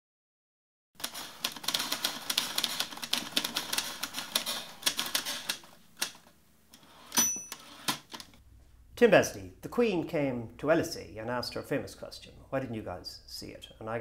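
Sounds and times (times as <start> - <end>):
typewriter keys clacking: 1.0 - 6.2.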